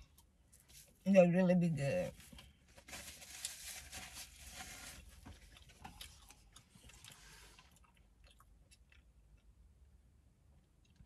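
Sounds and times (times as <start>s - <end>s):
chewing with mouth clicks: 5.2s - 9.6s.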